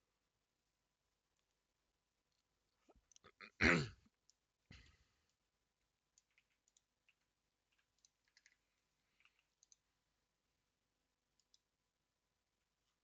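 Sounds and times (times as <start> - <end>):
computer keyboard clicks: 6.2 - 8.6, 9.2 - 9.8.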